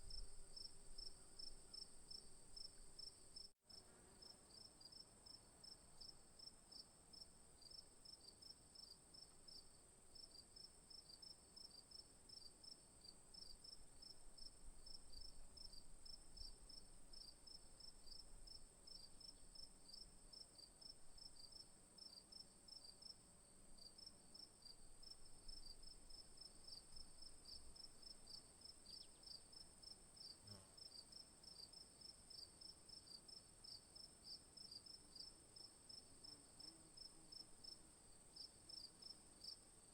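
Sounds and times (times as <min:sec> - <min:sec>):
insects chirping: 0:24.6 - 0:39.6.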